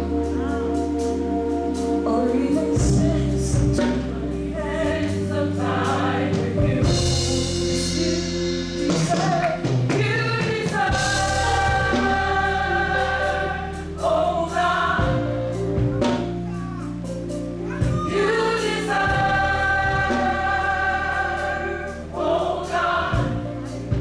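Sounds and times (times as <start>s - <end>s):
bass line: 0.0s - 10.2s, 10.8s - 24.0s
choir singing: 0.0s - 24.0s
drums: 0.0s - 24.0s.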